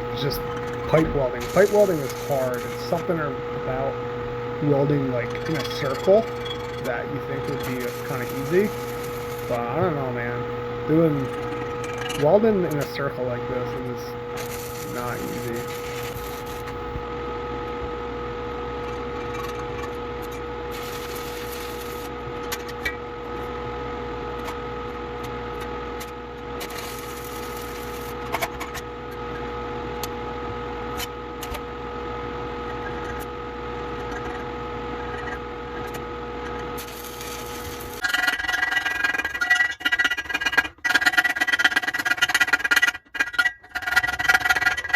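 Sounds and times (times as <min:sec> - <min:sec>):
constant hum: 0:00.0 - 0:17.0
welding hissing crackle: 0:00.0 - 0:17.0.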